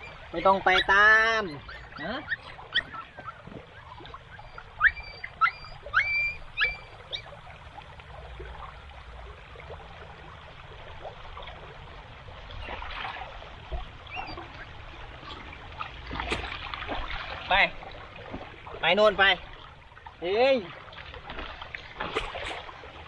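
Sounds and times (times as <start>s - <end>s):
squeaky animal calls: 0.0s - 7.4s
floodwater trickling: 0.0s - 23.0s.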